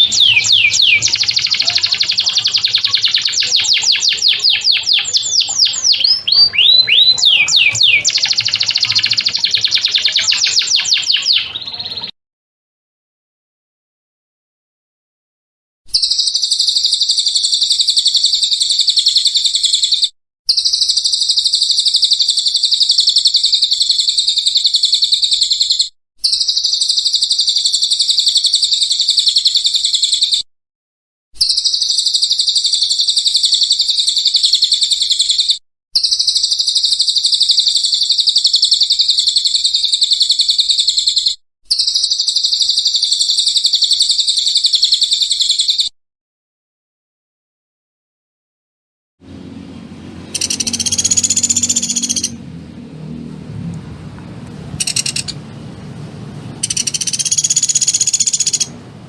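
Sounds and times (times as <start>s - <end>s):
songbird trilling: 0.0s - 12.1s, 16.0s - 30.4s, 31.4s - 45.9s, 50.3s - 52.4s, 54.8s - 55.4s, 56.6s - 58.7s.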